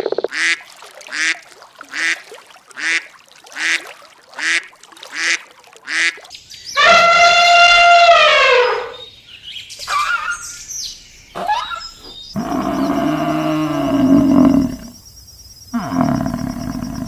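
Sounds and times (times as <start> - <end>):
animal calls: 6.8 - 9.1, 9.8 - 10.6, 11.3 - 14.9.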